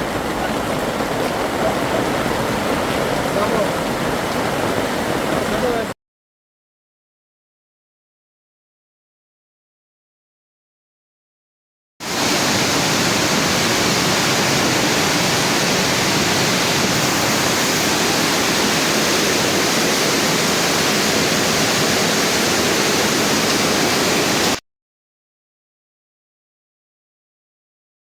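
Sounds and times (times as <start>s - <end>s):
roar of rushing water: 0.0s - 6.0s, 12.0s - 24.6s.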